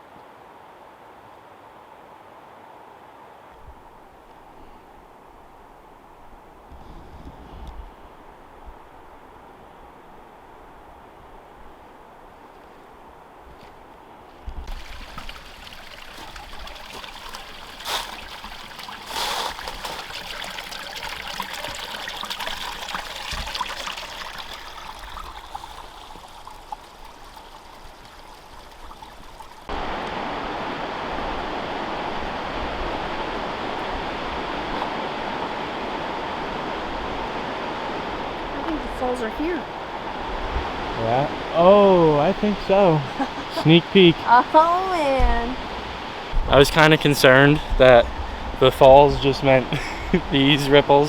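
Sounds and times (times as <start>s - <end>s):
stream water running over rocks: 10.0s - 51.0s
water rushing at cascading falls: 14.7s - 21.9s.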